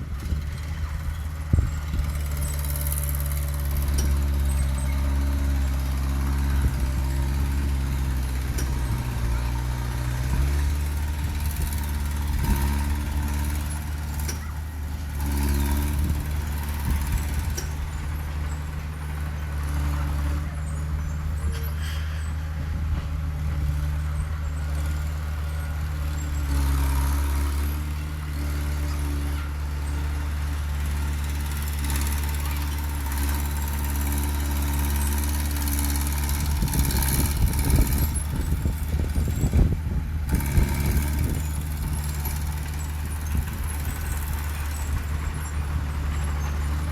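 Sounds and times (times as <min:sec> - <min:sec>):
diesel engine running: 0:00.0 - 0:46.9
rattling and clanking: 0:01.6 - 0:20.8.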